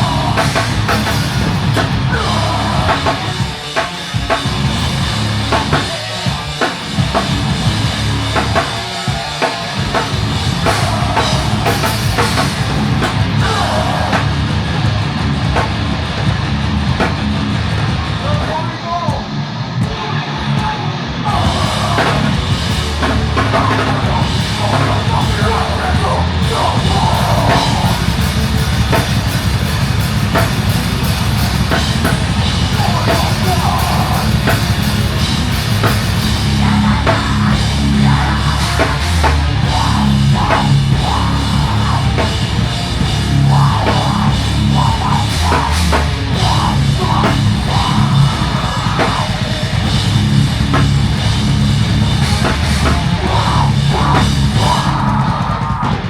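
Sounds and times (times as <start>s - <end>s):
heavy rock music: 0.0s - 56.0s
pounding drum kit: 0.0s - 56.0s.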